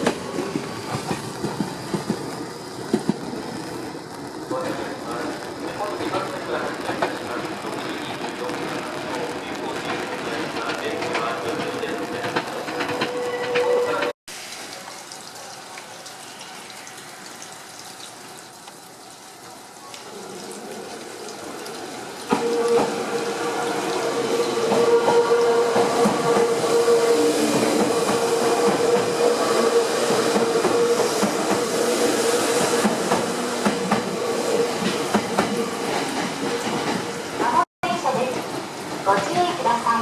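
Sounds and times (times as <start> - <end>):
train hiss: 21.5 - 37.6.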